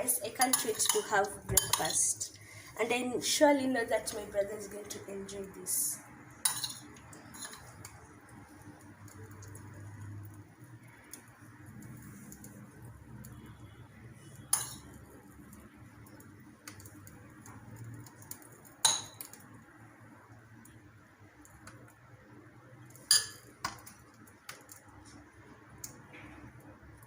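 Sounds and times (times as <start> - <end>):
cutlery clinking on a dish: 6.5 - 7.7.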